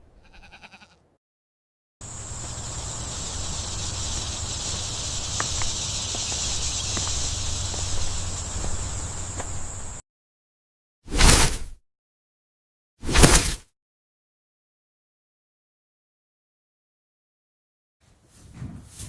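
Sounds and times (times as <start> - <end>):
insect chorus: 2.0 - 10.0.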